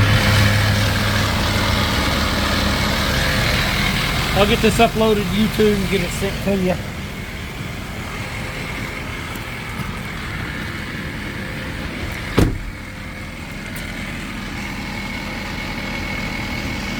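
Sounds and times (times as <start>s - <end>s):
truck engine idling: 0.0s - 16.9s
sharp thump: 12.2s - 12.9s.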